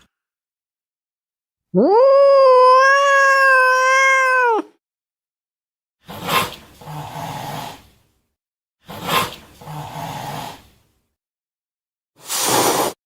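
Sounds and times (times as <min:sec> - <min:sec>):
cat yowling: 0:01.8 - 0:04.8
cat spitting and hissing: 0:12.2 - 0:13.0.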